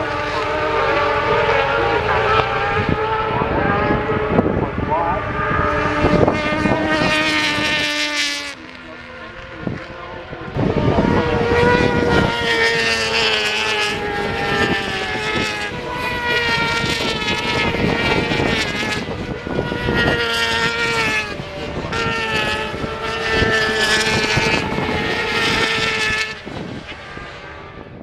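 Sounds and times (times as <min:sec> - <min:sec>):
motorbike engines passing: 0:00.0 - 0:28.0.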